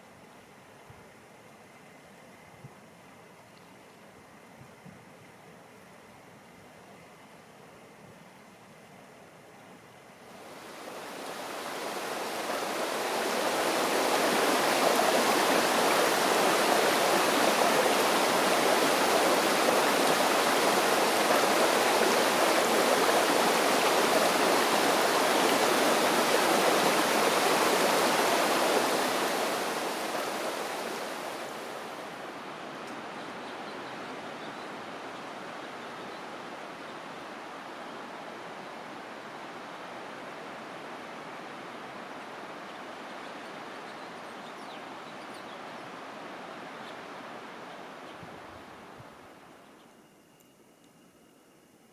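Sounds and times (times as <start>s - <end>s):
rushing water: 10.2s - 49.6s.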